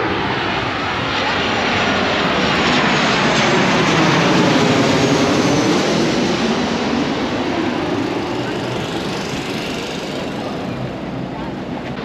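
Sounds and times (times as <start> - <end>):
engine noise rushing: 4.7 - 12.0.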